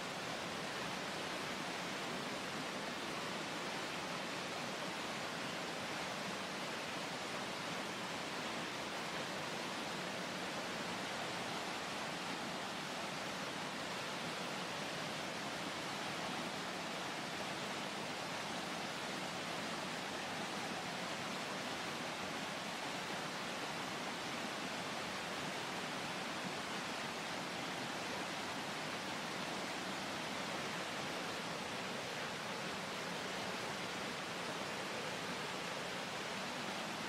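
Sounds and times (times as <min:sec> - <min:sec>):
roar of rapids and waterfalls: 0:00.0 - 0:37.0.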